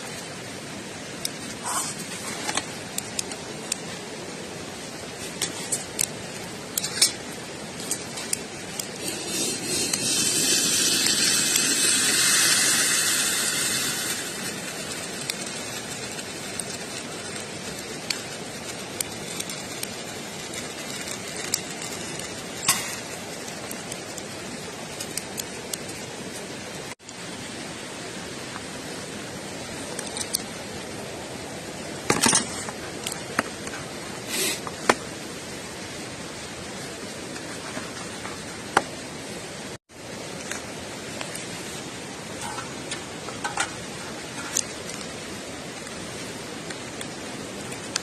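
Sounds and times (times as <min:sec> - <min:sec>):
broad hiss: 0:00.0 - 0:48.0
campfire crackling and popping: 0:00.1 - 0:26.6, 0:42.2 - 0:48.0.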